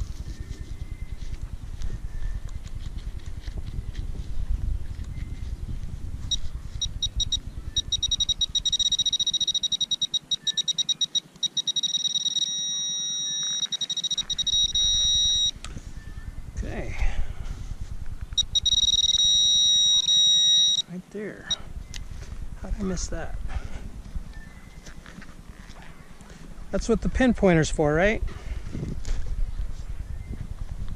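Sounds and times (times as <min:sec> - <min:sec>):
rustling of handling and digging: 0:00.0 - 0:04.4
pinpointer two-tone beeping: 0:06.3 - 0:15.5, 0:18.4 - 0:20.9.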